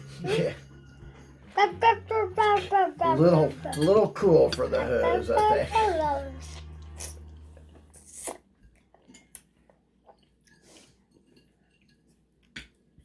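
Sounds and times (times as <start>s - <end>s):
low hum: 0.0s - 8.2s
dishes and cutlery clinking: 2.6s - 6.8s, 10.2s - 12.4s.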